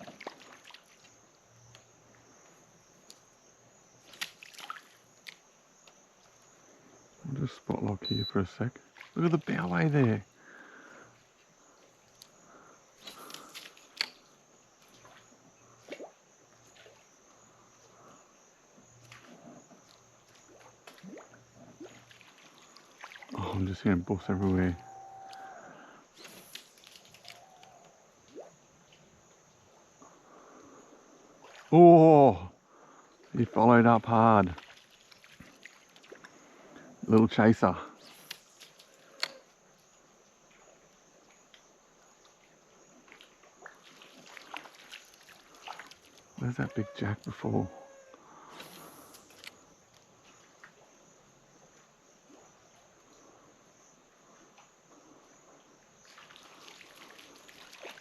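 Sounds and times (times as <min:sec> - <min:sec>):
faint creek: 0:00.0 - 0:58.0
faint ticks: 0:00.9 - 0:03.3, 0:04.0 - 0:06.6, 0:11.4 - 0:15.2, 0:24.8 - 0:25.6, 0:38.1 - 0:40.6, 0:41.3 - 0:42.4.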